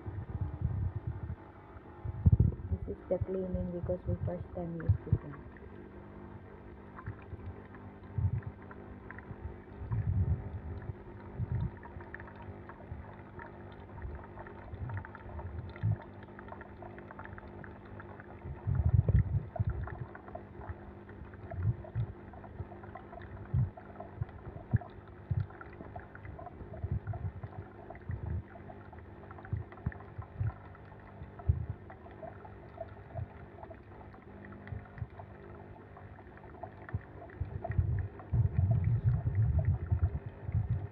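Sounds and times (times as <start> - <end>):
coffee machine pump hum: 0.0 - 40.9
water gurgling and spurting: 0.0 - 40.9.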